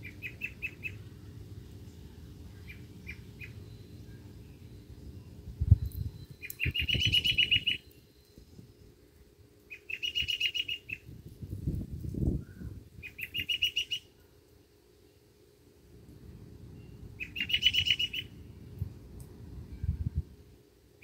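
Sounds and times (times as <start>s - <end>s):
bird trilling: 0.0s - 1.0s, 2.6s - 3.8s, 6.4s - 7.9s, 9.7s - 11.1s, 12.6s - 14.1s, 17.2s - 18.5s.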